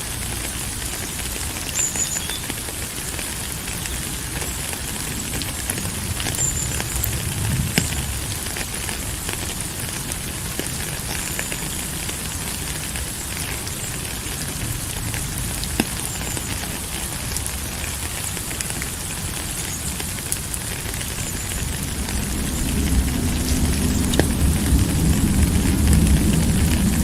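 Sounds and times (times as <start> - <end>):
raindrops clicking and pattering: 0.0 - 27.0
steady rain: 0.0 - 27.0
low rumble: 5.8 - 9.4, 21.6 - 27.0.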